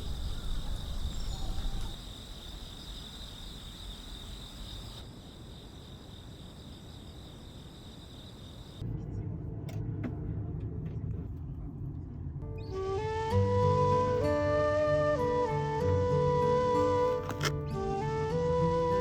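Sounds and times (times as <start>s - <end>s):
night insects trilling: 0.0s - 8.8s
low steady rumble: 8.8s - 12.5s.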